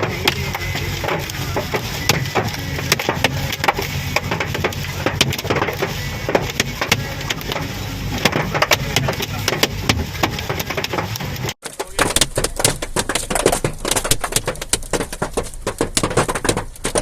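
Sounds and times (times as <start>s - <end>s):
low engine hum: 0.0s - 11.6s
hailstones pelting a car: 0.0s - 17.0s.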